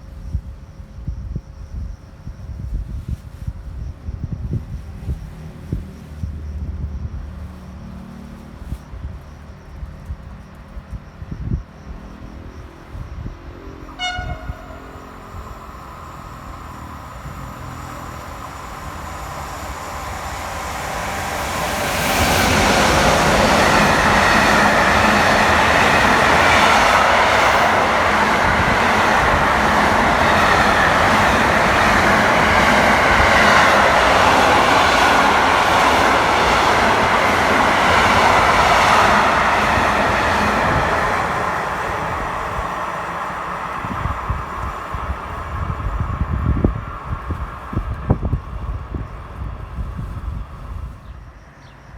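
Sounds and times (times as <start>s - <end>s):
train wheels rushing on rails: 12.2s - 51.5s
train horn toot: 13.6s - 15.9s.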